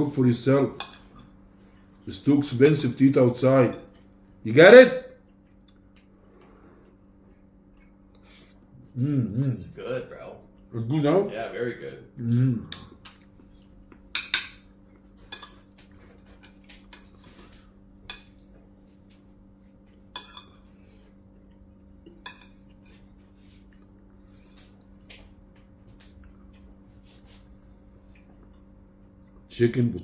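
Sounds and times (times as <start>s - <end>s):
cutlery clinking on plates: 14.1s - 17.1s, 20.1s - 20.7s, 22.1s - 22.7s.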